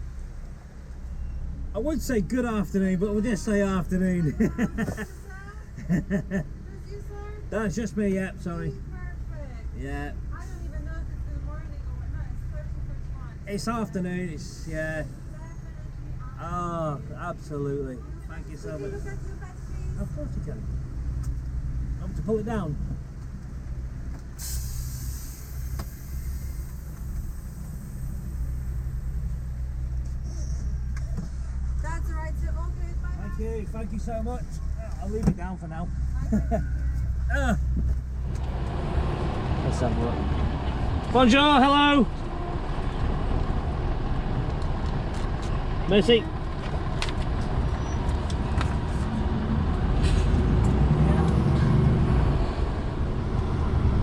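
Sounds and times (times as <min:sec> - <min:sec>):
diesel engine idling: 0:00.0 - 0:54.0
short hiss: 0:24.4 - 0:28.6.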